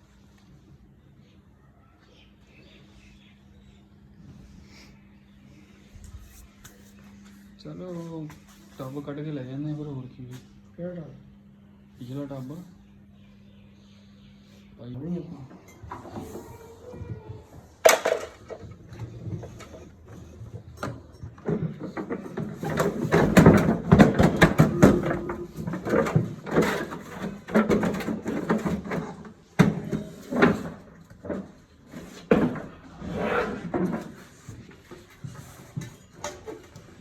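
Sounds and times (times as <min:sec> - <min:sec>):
knocks and clatter of tools: 0:15.5 - 0:32.8, 0:33.7 - 0:37.0.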